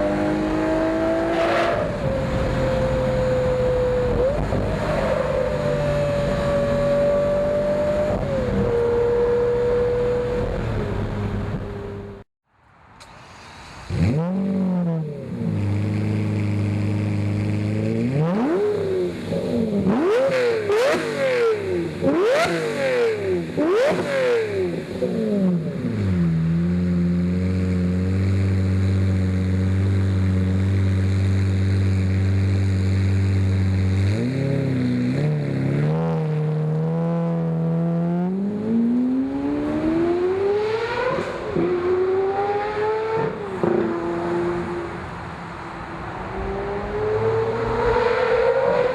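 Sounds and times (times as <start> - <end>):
sports car engine revving: 13.9 - 45.1.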